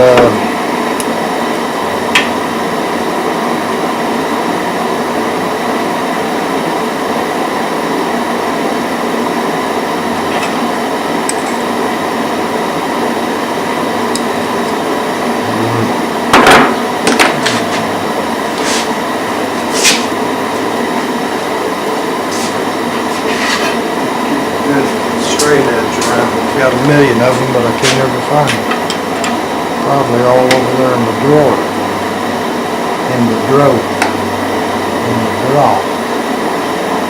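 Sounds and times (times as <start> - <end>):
workshop hum and hiss: 0.0 - 37.0
sharp knocks on a bench: 16.4 - 17.6.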